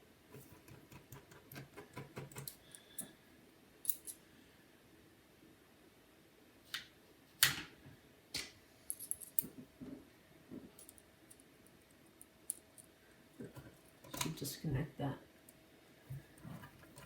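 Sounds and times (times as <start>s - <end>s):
laptop parts and tools clicking: 0.4s - 3.1s.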